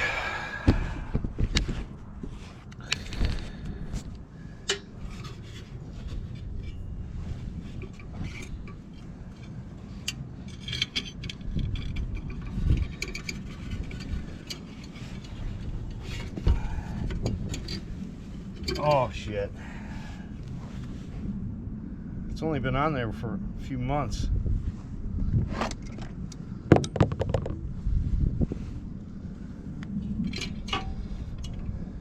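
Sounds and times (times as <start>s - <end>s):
low rumble: 0.0s - 32.0s
hand tools clicking on metal: 9.4s - 15.4s.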